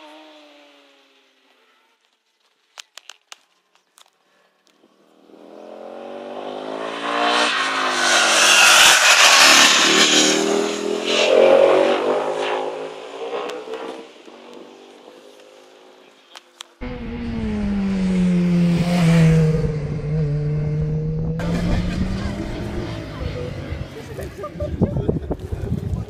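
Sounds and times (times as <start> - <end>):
racing motorcycle engine passing: 5.0 - 16.1, 16.8 - 25.7.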